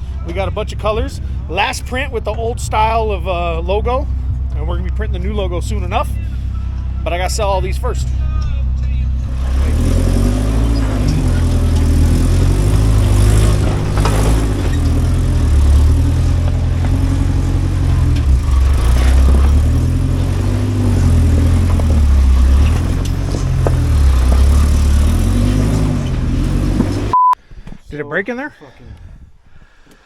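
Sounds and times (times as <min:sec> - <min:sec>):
vehicle engine revving: 0:00.0 - 0:27.2.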